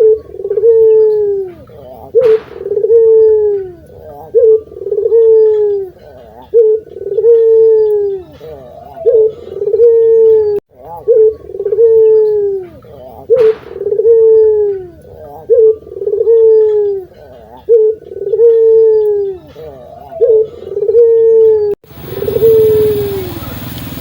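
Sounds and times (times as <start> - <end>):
dove cooing: 0.0 - 24.0
sharp click: 2.2 - 3.0, 13.3 - 14.2.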